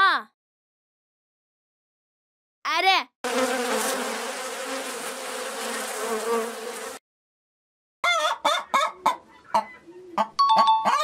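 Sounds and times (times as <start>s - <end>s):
bee buzzing: 3.2s - 7.0s
hen clucking: 8.0s - 11.0s.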